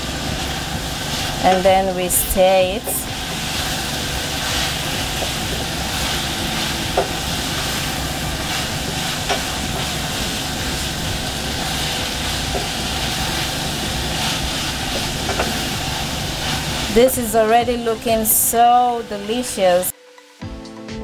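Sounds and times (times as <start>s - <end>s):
vegetables sizzling in a pan: 0.0s - 19.9s
spatula stirring: 3.0s - 17.6s
spatula knocking on pan: 6.9s - 7.2s, 9.2s - 9.9s, 14.9s - 15.6s.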